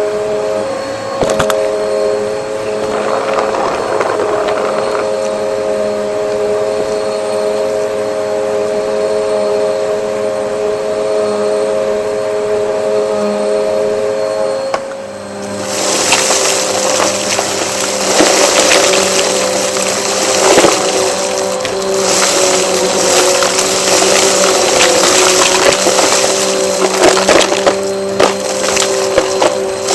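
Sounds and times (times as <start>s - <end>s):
vacuum cleaner running: 0.0s - 29.9s
crackling rattle: 2.6s - 5.6s, 15.4s - 29.9s.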